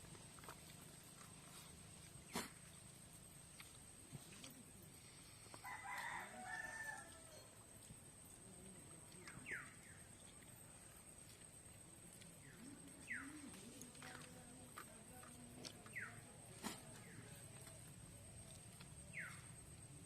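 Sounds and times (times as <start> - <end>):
rooster crowing: 5.6 - 7.6.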